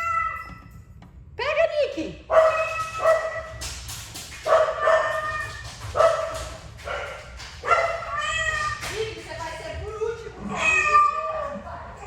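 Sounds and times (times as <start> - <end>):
pet animal high-pitched cries: 0.0 - 0.6, 10.5 - 11.5.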